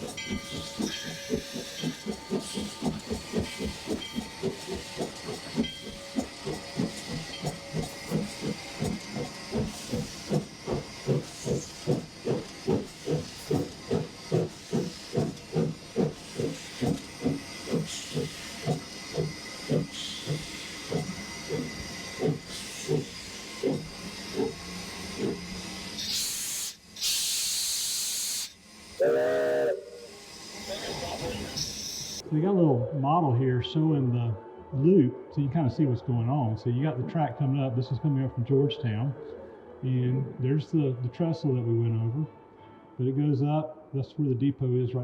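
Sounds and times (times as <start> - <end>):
steam hissing: 0.0 - 32.2
steam locomotive exhaust chuffing: 0.0 - 32.3.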